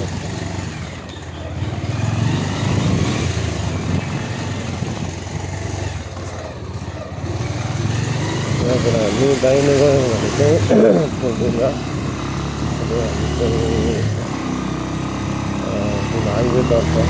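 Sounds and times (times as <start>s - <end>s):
motorcycle engine riding: 0.0s - 17.0s.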